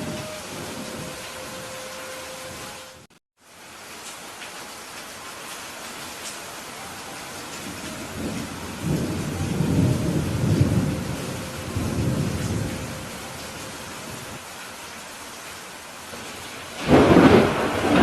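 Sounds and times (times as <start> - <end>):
steady rainfall: 0.0 - 18.0
thunder rumbling: 7.3 - 14.4, 16.7 - 18.0.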